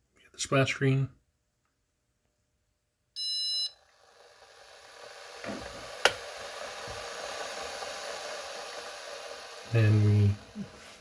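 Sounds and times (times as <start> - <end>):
piezo buzzer beep: 3.2 - 3.8
steady hiss: 3.8 - 11.0.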